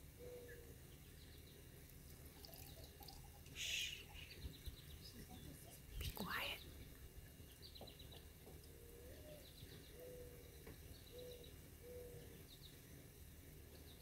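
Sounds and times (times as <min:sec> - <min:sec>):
small bird chirping trills: 0:00.0 - 0:14.0
dove cooing: 0:00.1 - 0:00.7, 0:08.7 - 0:12.4.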